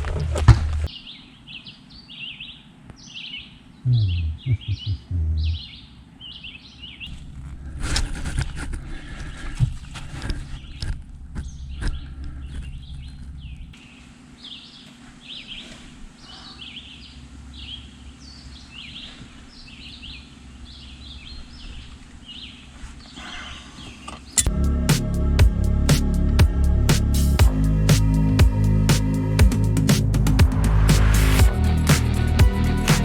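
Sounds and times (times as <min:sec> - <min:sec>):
small birds chirping: 0:00.8 - 0:07.2, 0:11.4 - 0:24.5.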